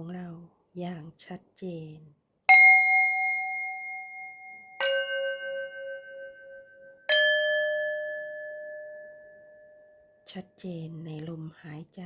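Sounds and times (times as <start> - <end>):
struck metal bell ringing: 2.5 - 10.2.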